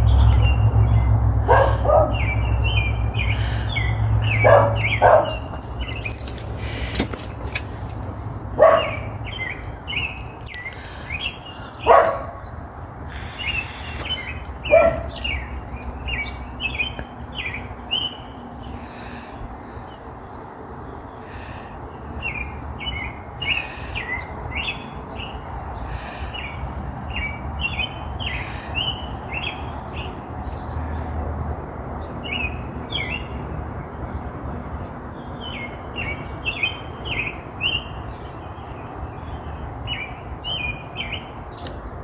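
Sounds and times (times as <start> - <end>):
songbirds chirping: 0.0 - 42.0
small dog barking: 1.5 - 2.2, 4.4 - 5.5, 8.6 - 9.1, 11.8 - 12.4, 14.7 - 15.2.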